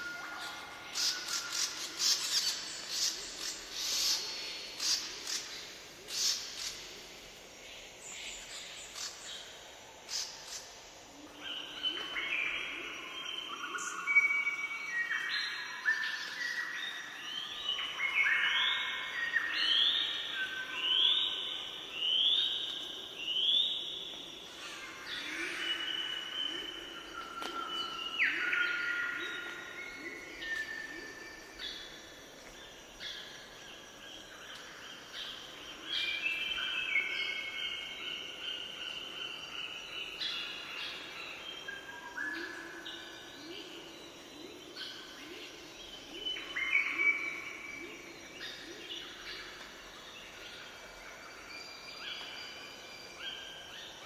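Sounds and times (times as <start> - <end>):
birds singing and chirping: 0.0 - 7.2, 11.4 - 54.0.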